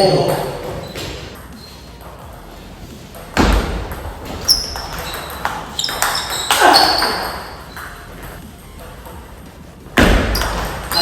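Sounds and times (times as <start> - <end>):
ping pong ball hitting paddle and table: 3.2 - 9.4, 10.0 - 11.0.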